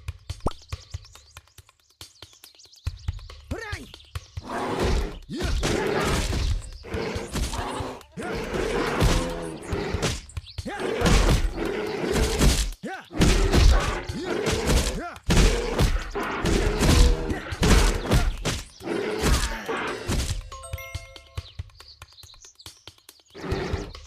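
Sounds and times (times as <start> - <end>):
low groaning cries: 6.8 - 12.5, 13.2 - 20.2
heavy thuds and crashes: 12.2 - 19.5.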